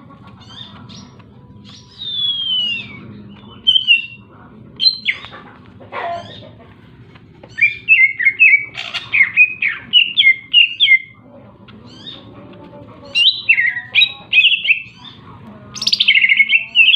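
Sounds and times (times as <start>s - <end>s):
bird singing chirpy whistles: 1.7s - 4.2s.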